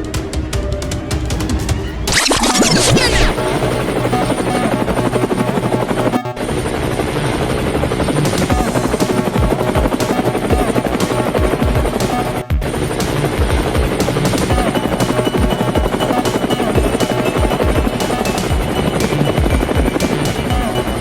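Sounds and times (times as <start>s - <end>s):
background music: 0.0s - 21.0s
chopping whirring drone: 2.1s - 14.6s.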